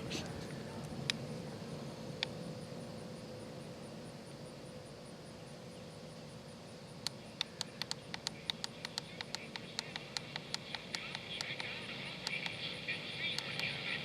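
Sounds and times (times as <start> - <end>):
faint static hiss: 0.0 - 14.0
radio sharp clicks: 7.0 - 12.6, 13.3 - 13.8.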